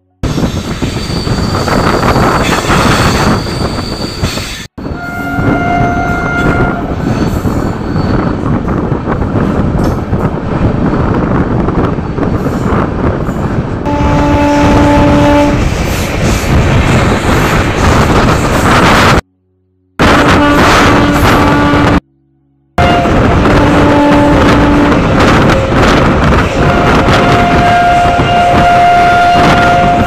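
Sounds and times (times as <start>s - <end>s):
high wheel squeal: 0.2s - 8.4s
train wheels rumbling and rattling: 0.2s - 19.3s, 22.8s - 30.0s
wind rush: 0.2s - 19.3s, 20.0s - 22.0s, 22.8s - 30.0s.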